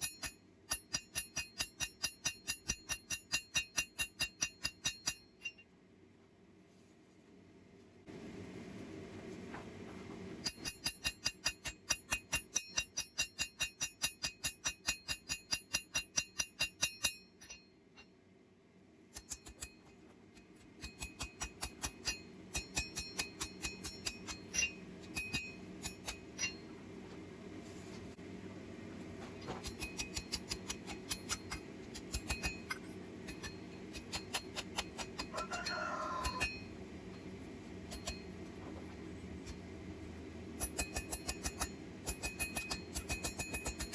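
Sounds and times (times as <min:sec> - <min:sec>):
hammer striking iron on anvil: 0:00.0 - 0:05.7, 0:10.4 - 0:18.1, 0:19.1 - 0:19.9, 0:20.8 - 0:26.7, 0:29.6 - 0:37.3, 0:37.9 - 0:38.4, 0:40.6 - 0:43.9.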